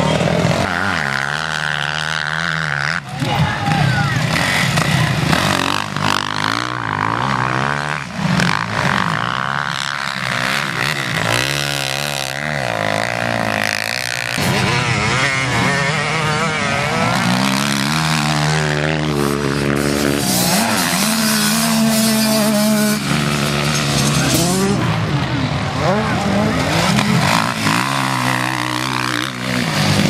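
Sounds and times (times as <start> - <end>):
motocross engines revving: 0.0 - 30.0.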